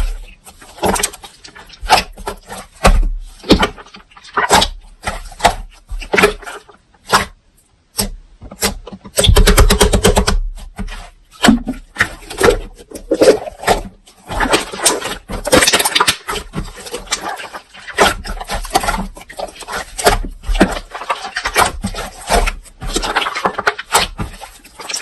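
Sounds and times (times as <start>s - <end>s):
slime squelching and popping: 0.0s - 25.0s.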